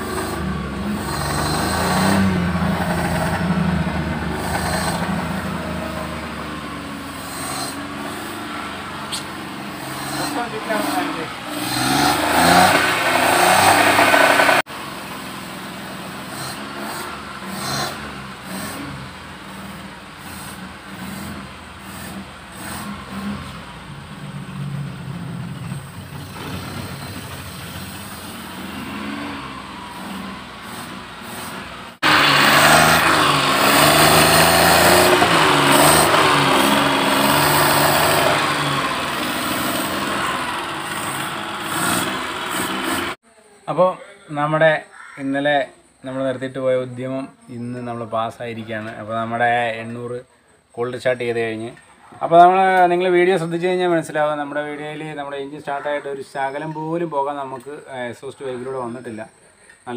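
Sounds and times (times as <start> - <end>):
car engine running: 0.0 - 43.2.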